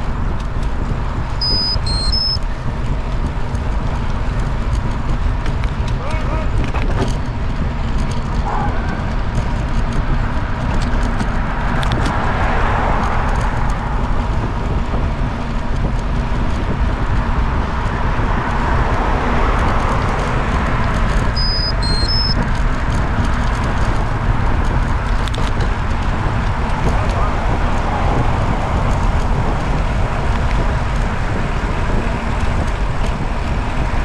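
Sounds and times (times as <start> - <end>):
road and wind rumble: 0.0 - 34.0
short high electronic beeps: 1.4 - 2.4, 21.4 - 22.4.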